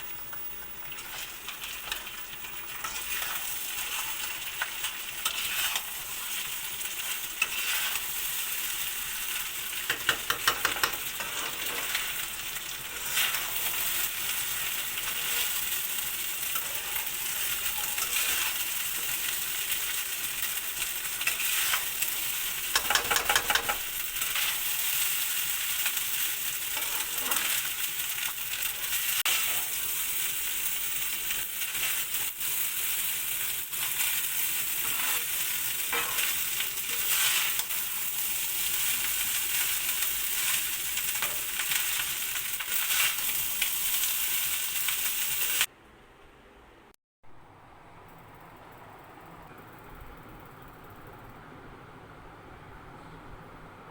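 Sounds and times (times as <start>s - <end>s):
food sizzling in hot oil: 0.0s - 45.7s
spoon scraping a pan: 0.3s - 8.6s, 9.3s - 20.1s, 20.7s - 29.8s, 33.7s - 42.1s.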